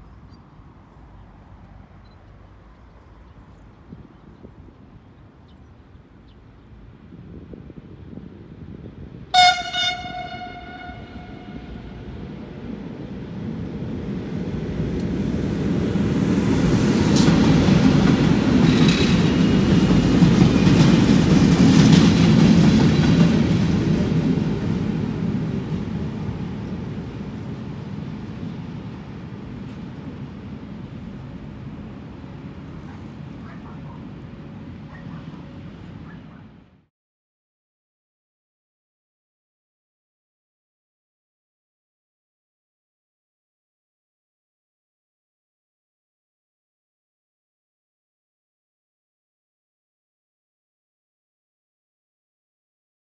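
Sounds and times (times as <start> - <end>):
passing train rumble: 0.0 - 36.9
train horn blast: 9.3 - 12.3.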